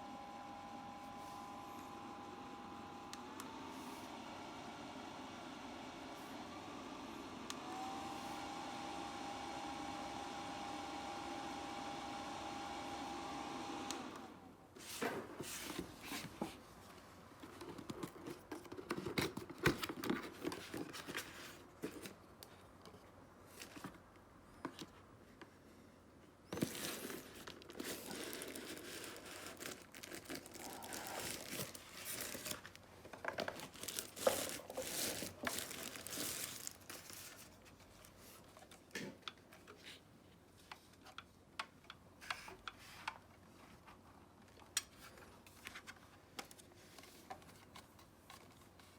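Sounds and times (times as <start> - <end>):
small fan motor humming: 0.0 - 14.5
plastic crinkling: 26.5 - 38.2.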